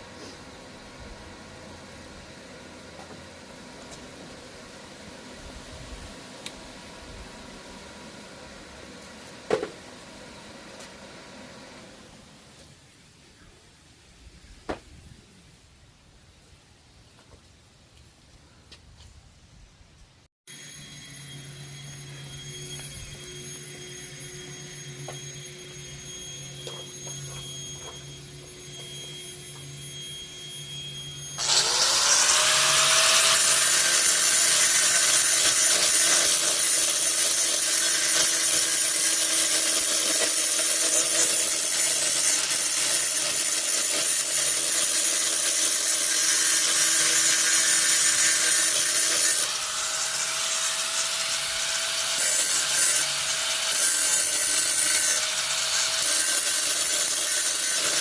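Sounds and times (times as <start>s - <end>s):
electric grinder grinding metal: 20.5s - 58.0s
low hum: 20.7s - 31.4s.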